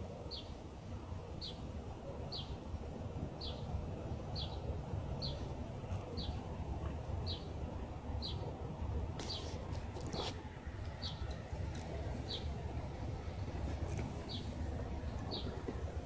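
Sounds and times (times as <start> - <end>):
bird chirping: 2.3 - 2.6, 4.3 - 5.5, 7.2 - 7.5, 8.2 - 8.5, 11.0 - 11.4, 12.2 - 12.6, 14.2 - 15.6.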